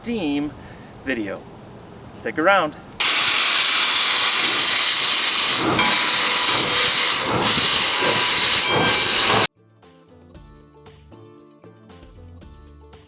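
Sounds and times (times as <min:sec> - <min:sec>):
steam locomotive venting steam: 0:03.0 - 0:09.5.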